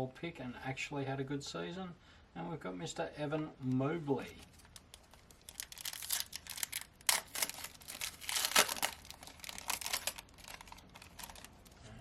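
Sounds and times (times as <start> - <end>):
cards rustling and clicking: 3.7 - 11.8
card wrapper crinkling and tearing: 4.2 - 11.8.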